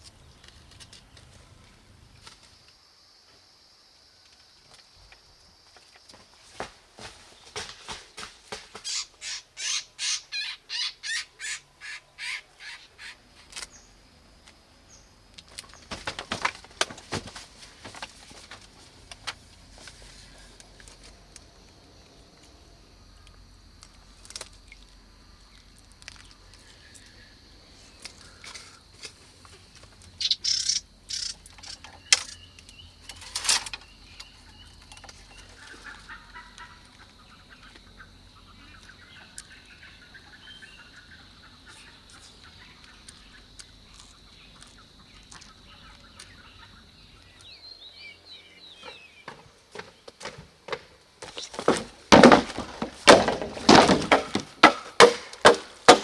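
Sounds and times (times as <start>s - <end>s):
chickens clucking: 35.2s - 39.0s
sharp knocks: 49.3s - 56.0s
loud strikes on wood: 51.6s - 56.0s.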